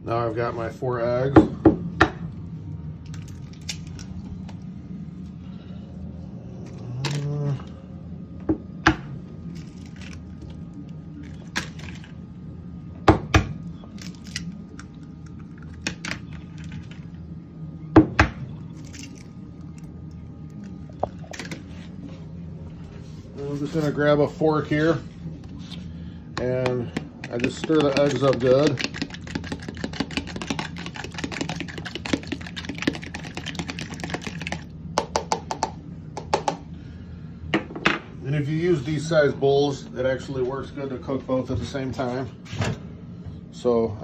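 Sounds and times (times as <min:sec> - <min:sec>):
steady low hum: 0:00.0 - 0:44.0
eggs cracking against bowl: 0:26.4 - 0:36.6.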